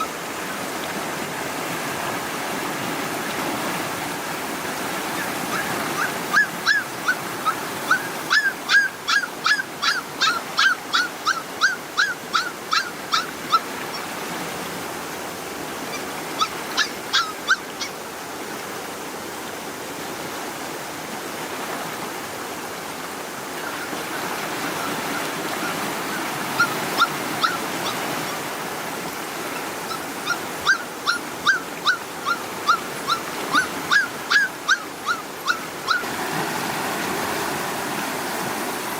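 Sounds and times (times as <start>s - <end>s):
flowing water rushing: 0.0s - 38.9s
puppies yelping and whimpering: 5.2s - 14.1s, 15.9s - 18.0s, 24.8s - 28.4s, 29.5s - 36.1s.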